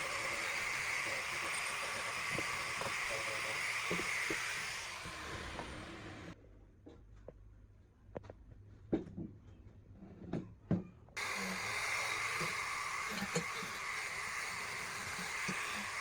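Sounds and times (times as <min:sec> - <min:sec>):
steady hiss: 0:11.2 - 0:16.0.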